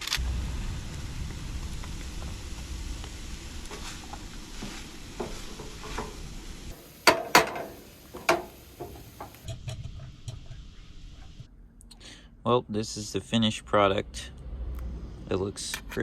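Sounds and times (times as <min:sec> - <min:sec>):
utensil clinking on cookware: 0:05.2 - 0:09.5.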